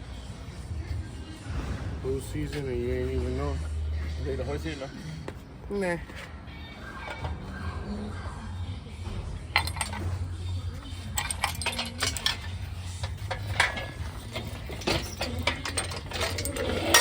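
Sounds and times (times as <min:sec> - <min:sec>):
metallic clinks and clanks: 0:09.5 - 0:17.0.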